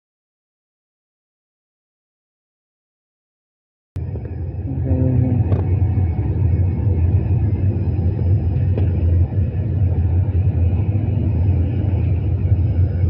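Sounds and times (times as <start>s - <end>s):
train rumbling past: 4.0s - 13.0s.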